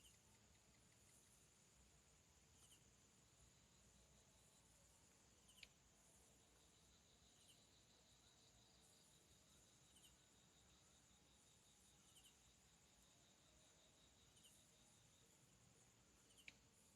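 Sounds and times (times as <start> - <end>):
insect trill: 0.0 - 16.9.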